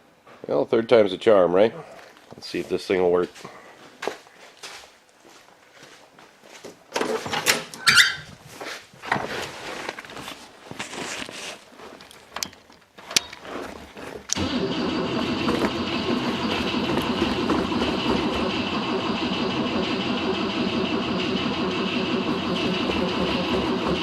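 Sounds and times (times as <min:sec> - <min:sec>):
clicks and clunks: 0:06.9 - 0:08.2, 0:12.0 - 0:13.4
car starter cranking engine: 0:14.3 - 0:24.0.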